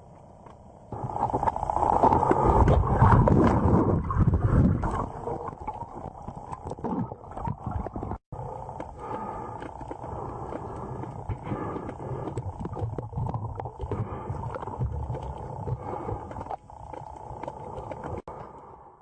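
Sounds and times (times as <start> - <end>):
underwater rushing water and bubbling: 0.0 - 18.4.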